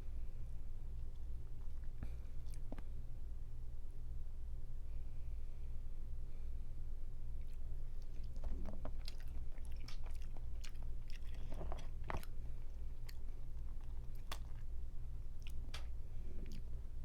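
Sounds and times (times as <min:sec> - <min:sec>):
chewing and biting: 0:01.6 - 0:02.9, 0:07.4 - 0:16.8.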